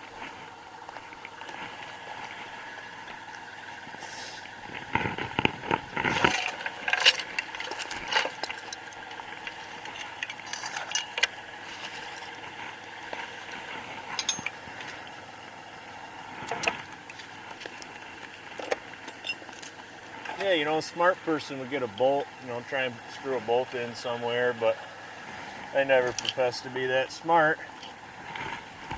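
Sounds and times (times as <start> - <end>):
chain rattling: 6.0 - 12.4, 14.1 - 14.6, 18.6 - 19.8
metal clanks and knocks: 14.1 - 14.6.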